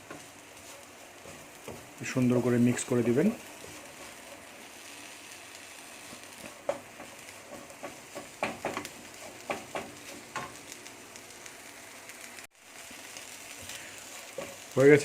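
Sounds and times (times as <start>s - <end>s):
spatula scraping and knocking pan: 0.0s - 4.5s, 6.0s - 10.6s
food sizzling in a frying pan: 0.0s - 15.0s.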